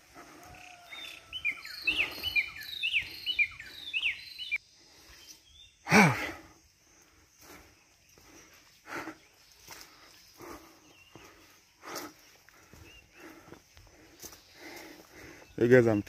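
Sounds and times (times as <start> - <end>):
songbird chirping: 0.0 - 16.0.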